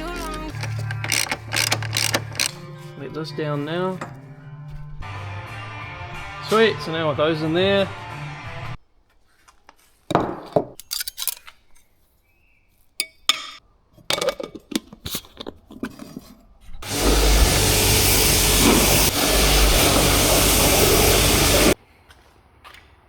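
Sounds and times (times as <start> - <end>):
metal tools clinking: 0.0 - 2.6, 10.8 - 12.0
power tool running: 0.0 - 2.6, 16.8 - 21.8.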